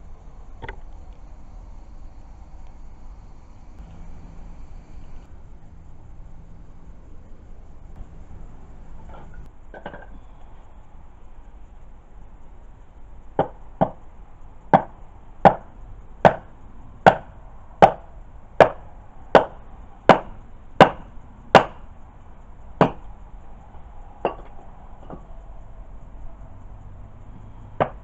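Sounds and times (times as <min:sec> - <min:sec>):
wood being chopped: 0:15.5 - 0:16.4, 0:17.1 - 0:18.0, 0:18.6 - 0:18.8, 0:19.4 - 0:21.8, 0:22.8 - 0:23.0, 0:27.8 - 0:28.0.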